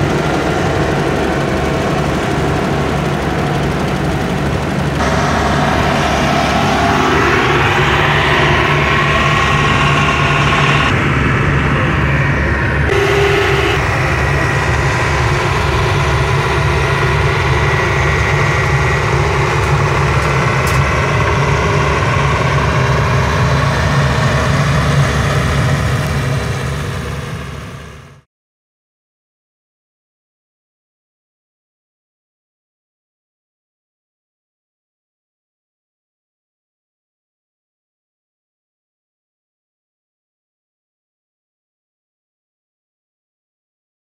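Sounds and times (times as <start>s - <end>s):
heavy diesel engine running: 0.0s - 28.2s.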